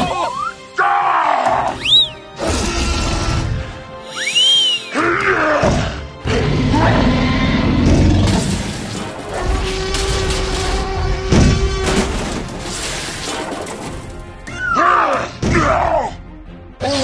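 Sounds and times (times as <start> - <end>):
background music: 0.0 - 17.0
cartoon whistling glides: 1.8 - 2.2, 4.1 - 5.0.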